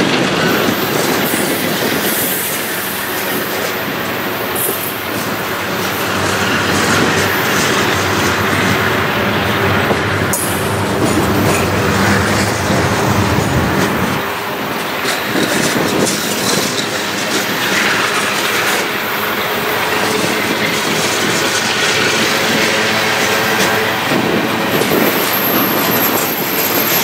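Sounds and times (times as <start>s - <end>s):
train wheels clacking over rail joints: 0.0s - 27.0s
wheel squeal: 15.1s - 27.0s.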